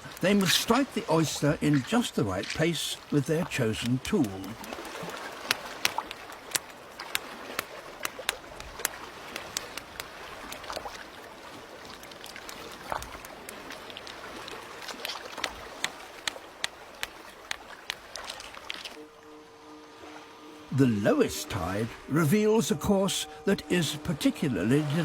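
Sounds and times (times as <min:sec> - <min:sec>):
water washing: 0:00.0 - 0:25.0
stone clicking on shell: 0:05.5 - 0:10.6, 0:15.0 - 0:18.8.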